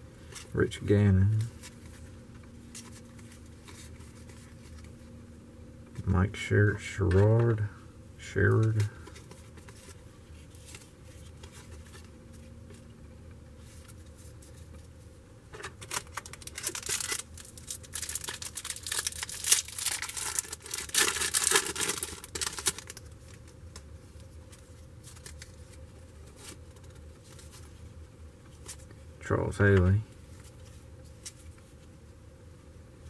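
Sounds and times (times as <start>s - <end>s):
wrapper being torn and crinkled: 15.8s - 23.4s, 25.0s - 25.8s.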